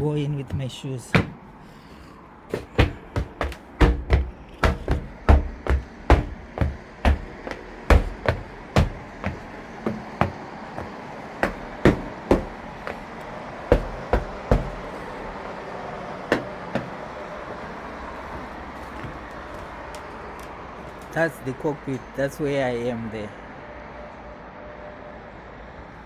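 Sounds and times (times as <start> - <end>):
shoes stamping heavy thuds: 0.0 - 15.4, 16.3 - 17.1
steady background noise: 0.0 - 26.0.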